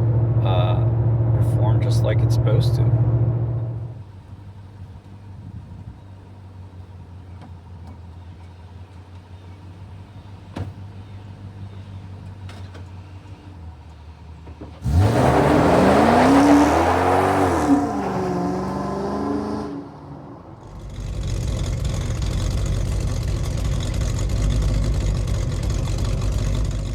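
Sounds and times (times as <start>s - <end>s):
engine idling low drone: 0.0s - 14.8s, 20.0s - 26.9s
truck engine revving loudly: 14.8s - 26.9s.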